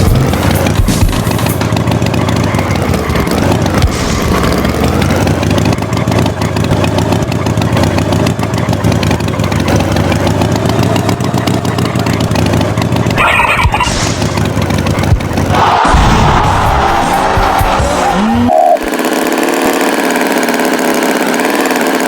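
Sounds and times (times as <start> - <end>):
motor engine running: 0.0 - 22.0.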